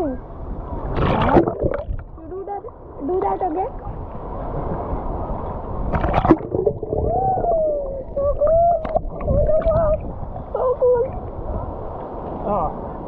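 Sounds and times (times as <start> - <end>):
water sloshing and lapping: 0.7 - 4.9, 5.8 - 12.5
water splash: 0.8 - 2.2, 5.8 - 11.3
muffled voice humming underwater: 7.0 - 11.2.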